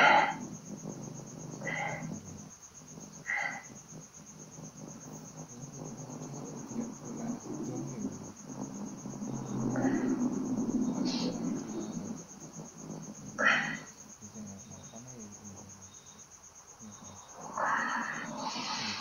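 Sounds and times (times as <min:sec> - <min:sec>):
low murmur: 0:00.0 - 0:16.1
crickets chirping: 0:00.0 - 0:19.0.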